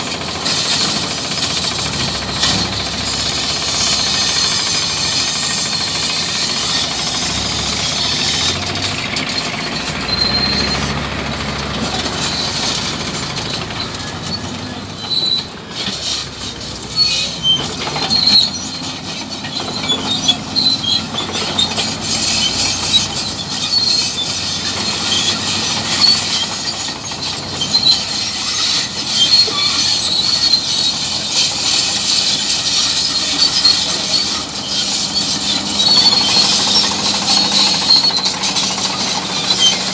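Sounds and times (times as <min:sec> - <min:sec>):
bulldozer engine running: 0:00.0 - 0:39.9
steel tracks squealing and clanking: 0:00.0 - 0:39.9.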